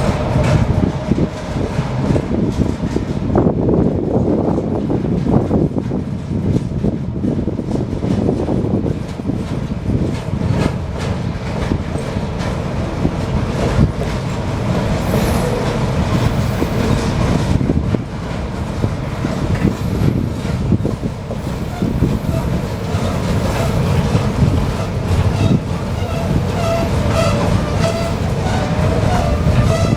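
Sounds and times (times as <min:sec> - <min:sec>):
train wagons rumbling past: 0:00.0 - 0:29.9
wheels clicking over rail joints: 0:05.1 - 0:29.9
faint high wheel squeal: 0:21.4 - 0:29.9.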